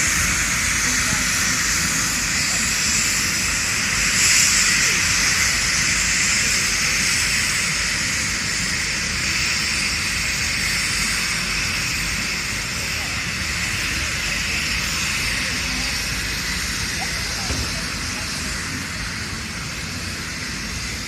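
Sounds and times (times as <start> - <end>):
steam hissing: 0.0 - 21.0.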